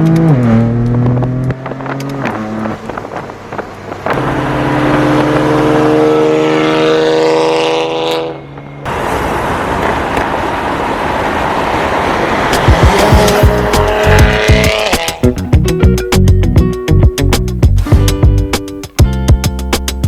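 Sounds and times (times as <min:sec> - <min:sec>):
rushing noise of car at speed: 0:00.0 - 0:15.4
car exhaust drone: 0:00.0 - 0:15.6.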